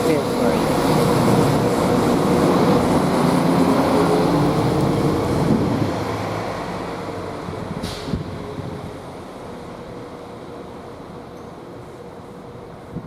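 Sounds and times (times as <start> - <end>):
diesel train running: 0.0 - 13.0.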